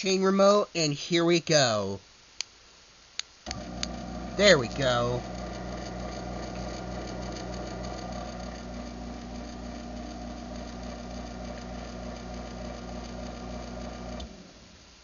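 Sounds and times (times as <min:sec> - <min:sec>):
garage door opener motor humming: 0:03.5 - 0:14.8.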